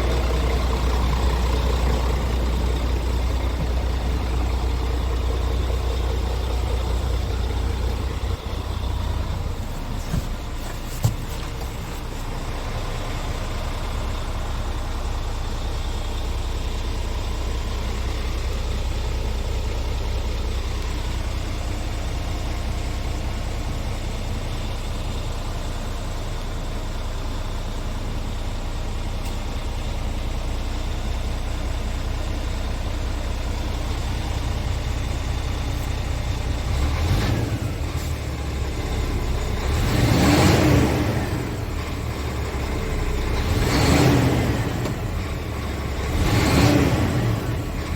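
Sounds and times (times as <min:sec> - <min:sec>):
diesel engine idling and revving: 0:00.0 - 0:47.9.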